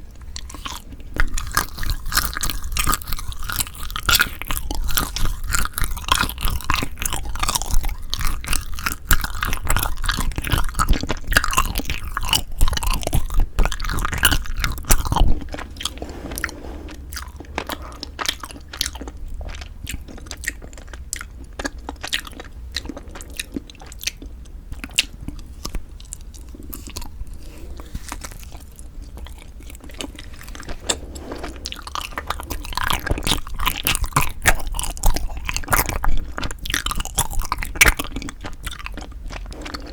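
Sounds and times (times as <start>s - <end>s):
wet chewing and biting: 0.2s - 39.9s.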